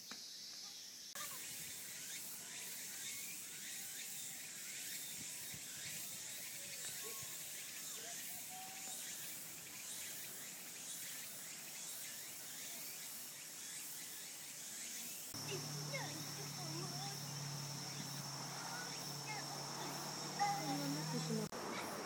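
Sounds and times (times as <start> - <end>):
insects humming: 0.0 - 22.0.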